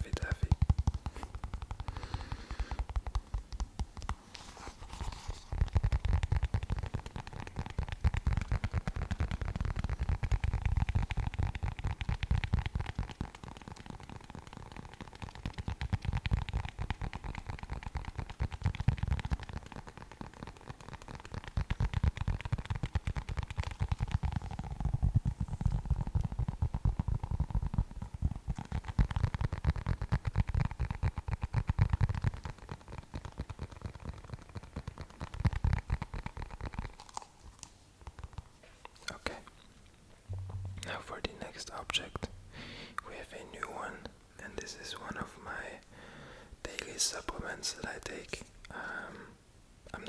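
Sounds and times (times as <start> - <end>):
tapping and scratching on object: 0.0 - 39.7
low thumps: 40.3 - 42.6.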